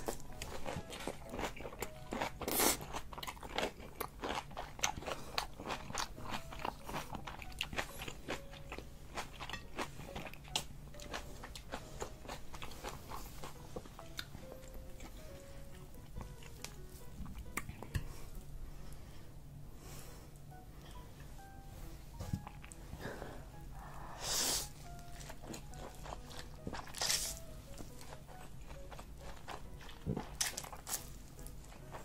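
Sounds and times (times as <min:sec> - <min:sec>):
chewing noodles: 0:00.0 - 0:18.1, 0:24.8 - 0:32.0.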